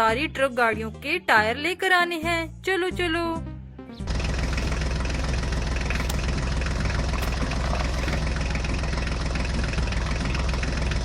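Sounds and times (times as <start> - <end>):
tractor engine running: 4.0 - 11.0.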